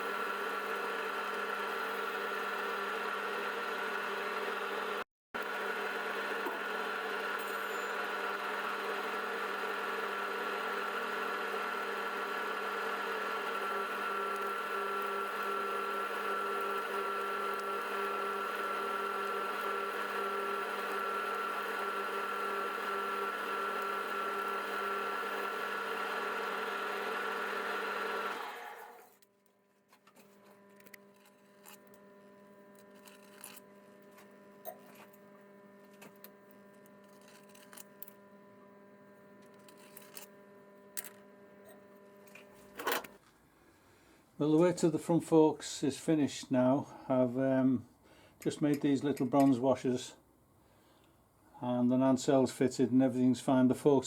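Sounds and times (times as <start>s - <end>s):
workshop machine motor whine: 0.0s - 29.3s, 29.9s - 43.2s.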